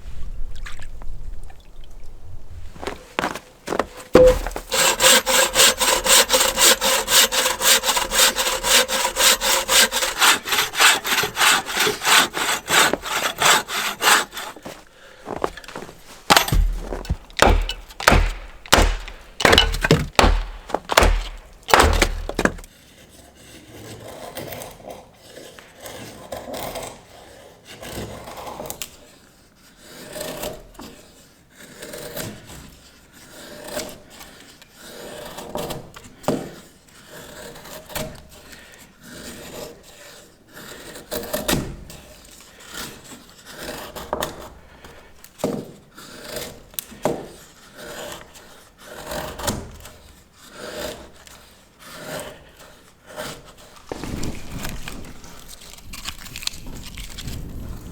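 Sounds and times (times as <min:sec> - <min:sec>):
rubbing and handling noises: 0:02.7 - 0:22.7, 0:53.6 - 0:57.9
low thuds: 0:02.8 - 0:05.0, 0:12.3 - 0:22.7
saw cutting wood: 0:03.2 - 0:22.7.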